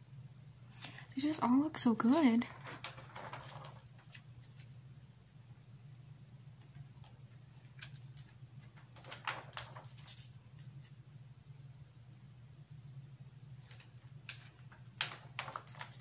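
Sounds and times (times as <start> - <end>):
faint low hum: 0.0 - 16.0
magazine pages rustling: 0.7 - 1.1, 2.4 - 4.8, 6.6 - 11.0, 13.6 - 16.0.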